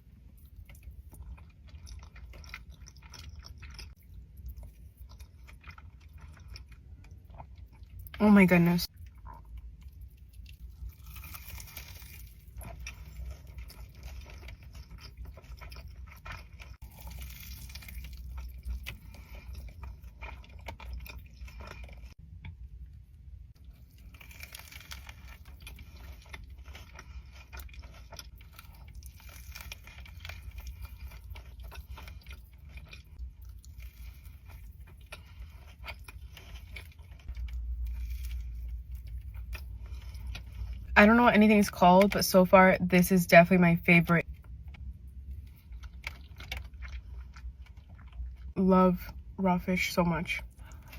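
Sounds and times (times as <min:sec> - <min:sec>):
steady low hum: 0:00.0 - 0:50.9
mouth chewing and smacking: 0:00.2 - 0:08.2, 0:08.9 - 0:22.6, 0:23.6 - 0:40.9, 0:44.2 - 0:48.6
small crunches: 0:10.6 - 0:22.2, 0:23.8 - 0:40.7.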